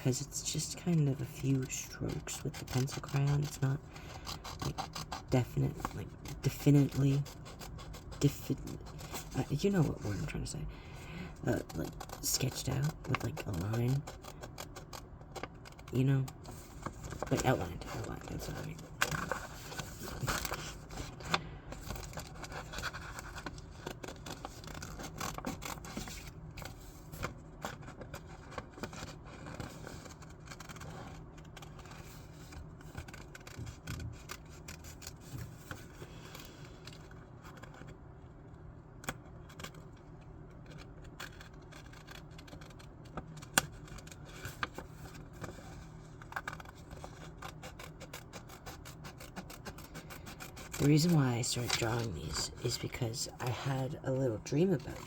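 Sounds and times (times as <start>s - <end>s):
paper scraping and rustling: 1.4s - 10.4s, 11.3s - 38.0s, 40.7s - 55.0s
scissors snipping paper: 1.5s - 10.4s, 40.7s - 55.0s.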